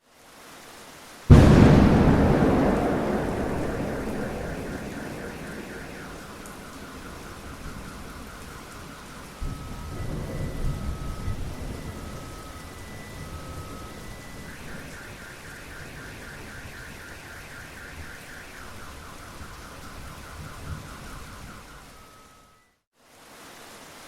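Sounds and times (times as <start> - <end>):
steady rain: 0.0 - 22.4, 23.0 - 24.0
thunder rumbling: 1.3 - 14.7
car alarm: 1.3 - 22.7.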